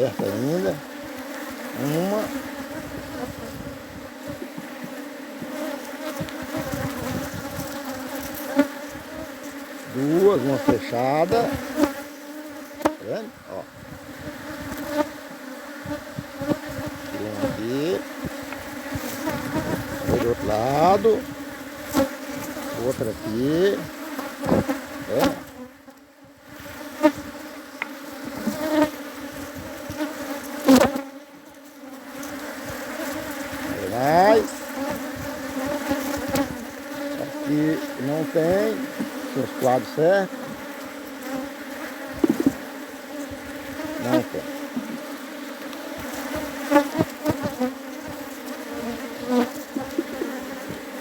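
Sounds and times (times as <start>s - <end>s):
bees buzzing: 0.0s - 51.0s
knock on hive: 3.0s - 7.8s, 23.8s - 25.6s, 38.8s - 40.7s, 42.1s - 44.0s.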